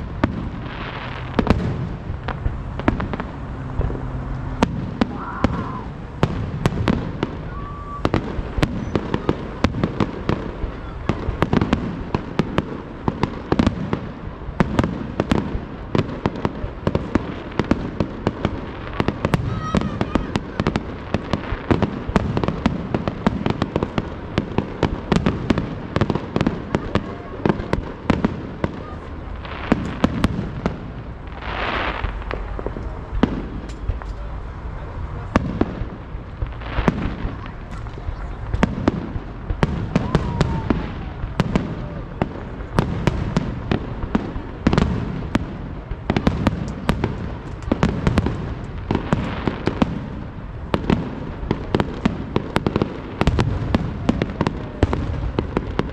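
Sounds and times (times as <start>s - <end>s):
fireworks crackling and banging: 0.0s - 55.9s
hissing firework burst: 0.0s - 55.9s.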